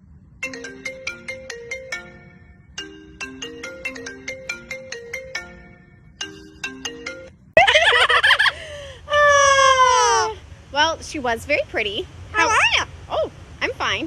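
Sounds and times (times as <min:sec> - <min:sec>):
phone ringtone marimba melody: 0:00.4 - 0:07.6
parrot warbling and whistling: 0:12.4 - 0:12.9.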